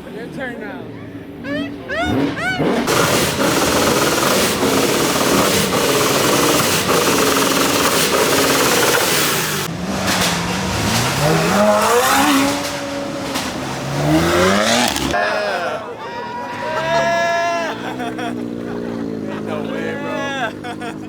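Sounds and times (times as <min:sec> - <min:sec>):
car engine revving: 0:01.8 - 0:15.2, 0:17.7 - 0:21.0.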